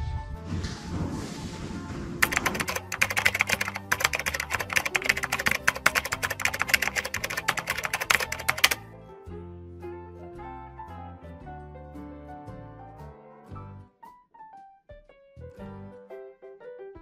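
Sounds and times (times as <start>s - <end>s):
background music: 1.5s - 14.6s
keyboard typing clicks: 2.2s - 8.8s.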